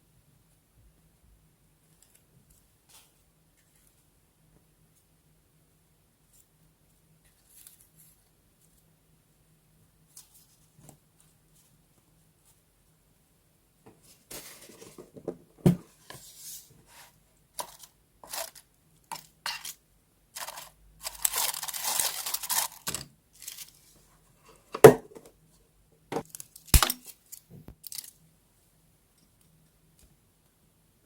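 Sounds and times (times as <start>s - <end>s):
paper rustling and tearing: 20.4s - 23.9s.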